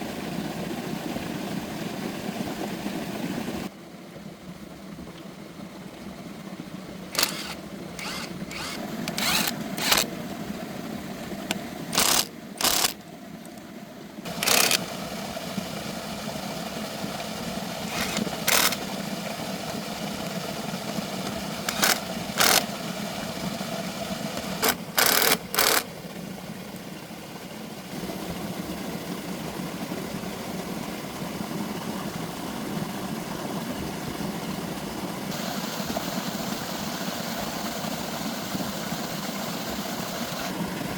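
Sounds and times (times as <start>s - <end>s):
short sharp bursts of noise: 7.1s - 10.1s, 11.9s - 13.0s, 14.3s - 15.0s, 17.9s - 18.9s, 21.2s - 22.7s, 24.4s - 25.9s
tractor engine running: 7.1s - 13.7s, 14.3s - 26.3s.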